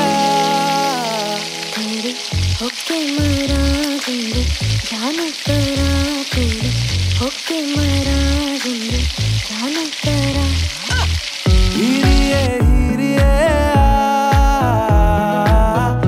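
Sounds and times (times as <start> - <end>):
vegetables sizzling in oil: 0.0 - 12.6
background music with beat: 11.5 - 16.0.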